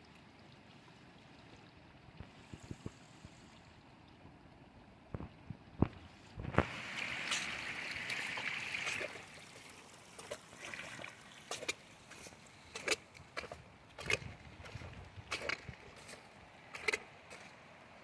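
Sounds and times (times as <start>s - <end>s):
water splashing: 5.2s - 18.0s.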